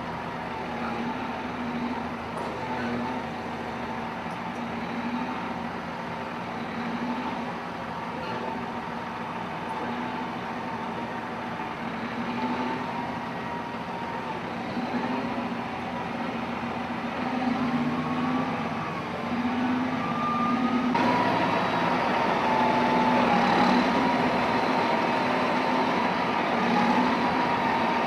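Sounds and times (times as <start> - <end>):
heavy machine engine running: 0.0 - 28.0.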